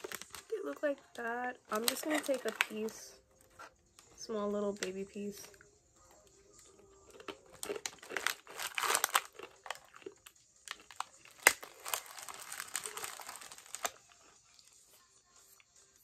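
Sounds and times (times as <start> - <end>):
crunchy snack being chewed: 6.6 - 14.9.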